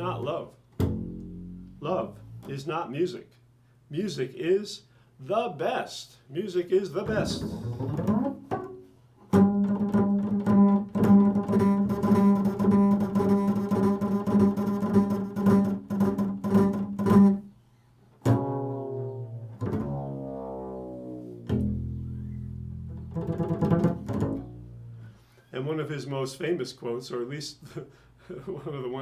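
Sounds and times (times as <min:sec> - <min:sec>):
solo string instrument music: 0:00.0 - 0:02.5, 0:07.1 - 0:17.5, 0:18.2 - 0:25.2.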